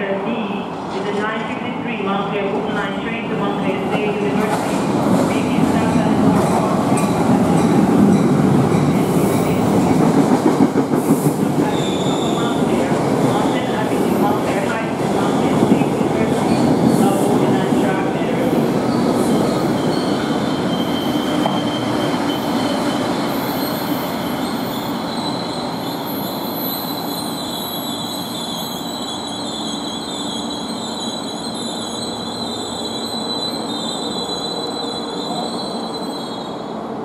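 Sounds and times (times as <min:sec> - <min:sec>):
train rumbling: 0:00.0 - 0:29.2
train wheels squealing: 0:11.7 - 0:12.6, 0:18.9 - 0:36.8.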